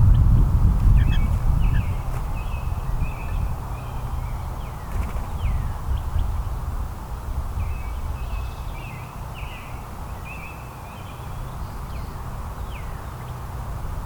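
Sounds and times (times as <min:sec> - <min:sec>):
steady low rumble: 0:00.0 - 0:08.2
songbirds chirping: 0:00.0 - 0:14.0.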